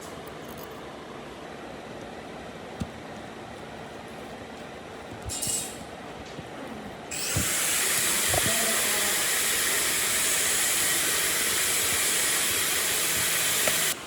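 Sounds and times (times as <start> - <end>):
compressed air hissing: 7.1 - 14.0.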